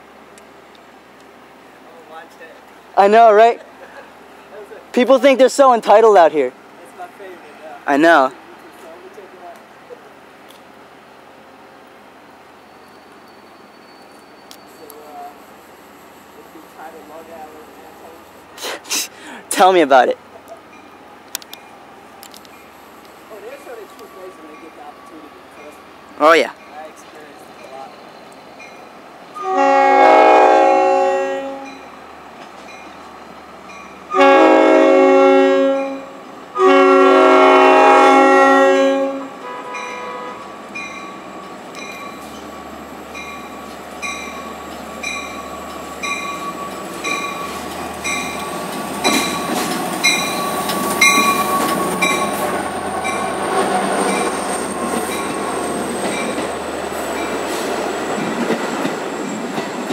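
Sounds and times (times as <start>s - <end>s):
train wheel squeal: 12.5s - 16.9s, 23.3s - 29.5s, 39.7s - 59.9s
crossing bell dinging: 12.6s - 15.2s, 23.4s - 29.6s, 31.5s - 32.0s, 32.6s - 35.0s, 35.6s - 36.2s, 39.4s - 57.4s
locomotive air horn blasts: 29.4s - 31.7s, 34.1s - 40.4s.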